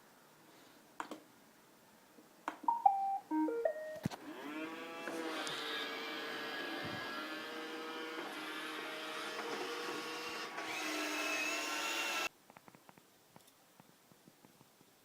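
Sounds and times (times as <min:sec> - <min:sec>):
robot vacuum whirring: 0:04.1 - 0:12.3.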